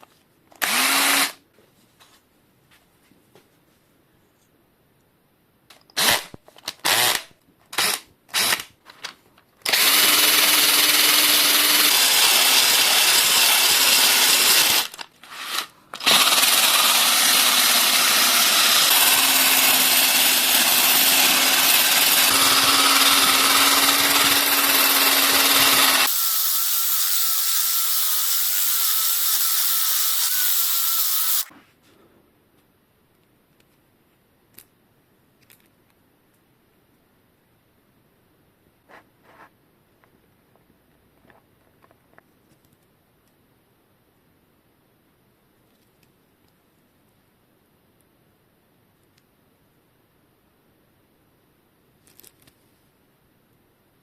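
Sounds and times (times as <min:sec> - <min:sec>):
electric power tool whining: 0:09.7 - 0:31.5.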